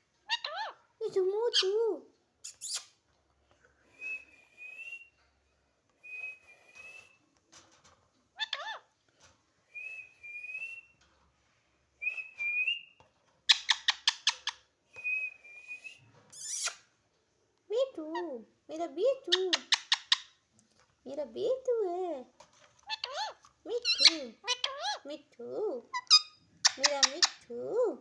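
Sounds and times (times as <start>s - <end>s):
parrot squawking: 0.3s - 0.8s, 8.4s - 8.9s, 22.8s - 25.0s, 25.9s - 27.5s.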